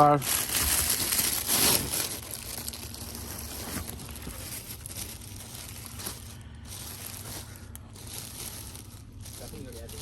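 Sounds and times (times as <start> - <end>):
rustling and crinkling: 0.0 - 10.0
steady low hum: 0.0 - 10.0.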